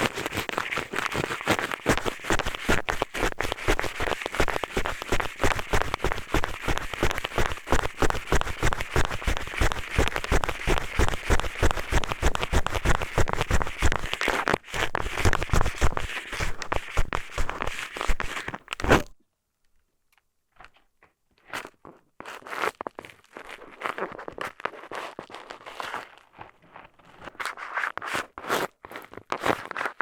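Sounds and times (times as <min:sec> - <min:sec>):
eyeglasses scratching microphone: 0:00.0 - 0:19.1.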